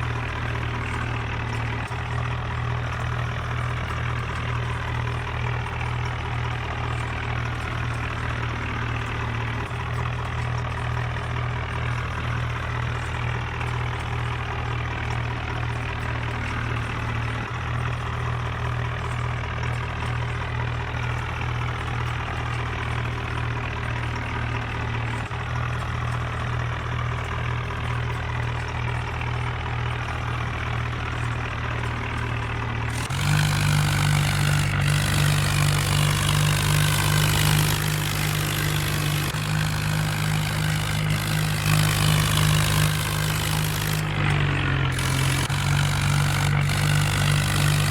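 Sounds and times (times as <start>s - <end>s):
tractor diesel engine idling: 0.0s - 47.9s
engine revving: 32.1s - 47.9s.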